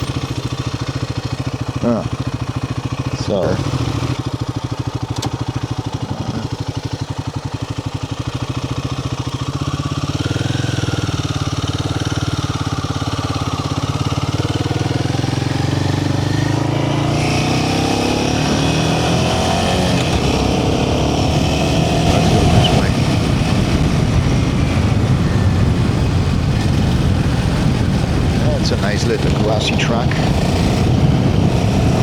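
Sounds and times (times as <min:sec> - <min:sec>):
motorcycle engine pulsing: 0:00.0 - 0:32.0
rushing wind noise: 0:14.8 - 0:32.0.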